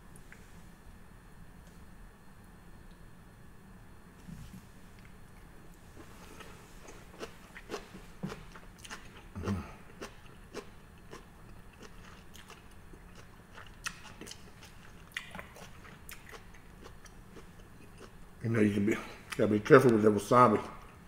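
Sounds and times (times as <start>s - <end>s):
person chewing: 5.9s - 18.2s.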